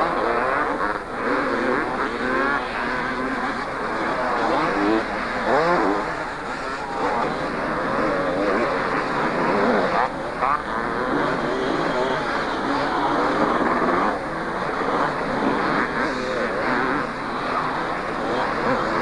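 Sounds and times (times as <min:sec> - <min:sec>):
motocross motorcycles revving: 0:00.0 - 0:19.0.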